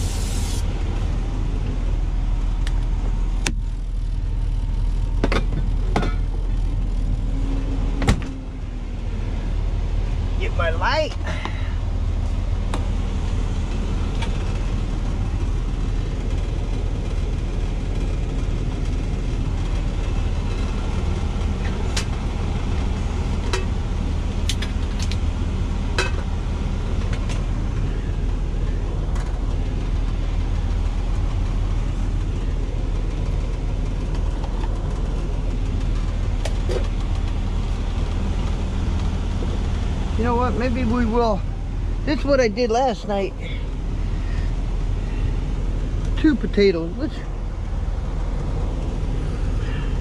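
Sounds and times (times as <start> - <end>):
diesel truck engine idling: 0.0 - 50.0.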